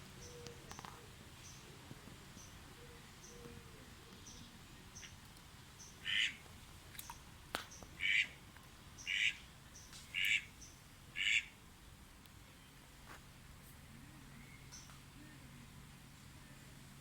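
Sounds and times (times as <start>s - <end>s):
duck quacking: 6.0s - 6.4s, 8.0s - 8.4s, 9.1s - 9.4s, 10.2s - 10.5s, 11.2s - 11.5s.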